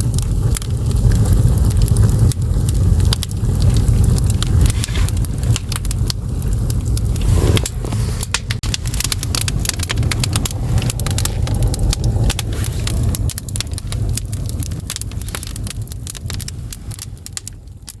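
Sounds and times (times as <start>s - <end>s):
fire rumbling: 0.0s - 18.0s
wood crackling and popping: 0.0s - 18.0s.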